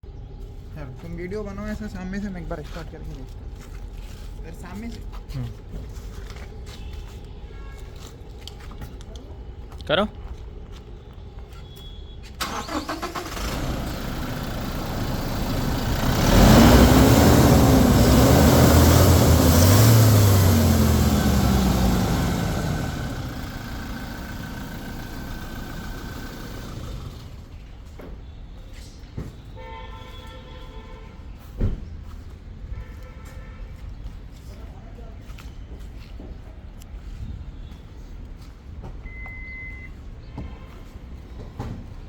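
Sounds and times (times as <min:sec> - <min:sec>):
car engine revving: 0:12.4 - 0:27.5.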